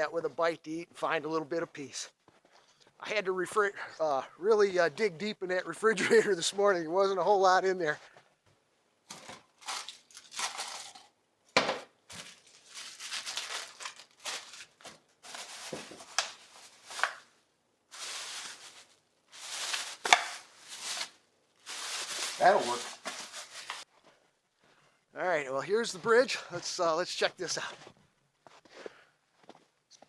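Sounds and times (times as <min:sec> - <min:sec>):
footsteps crunching through snow: 0:18.0 - 0:24.1.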